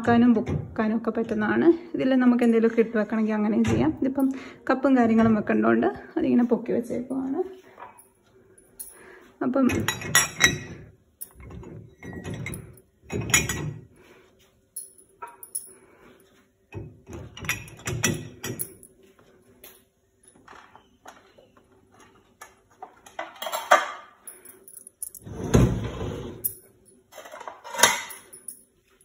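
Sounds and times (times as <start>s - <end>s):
dishes clinking in dishwasher racks: 9.7s - 13.8s, 16.8s - 18.8s, 23.0s - 24.2s, 27.2s - 28.4s.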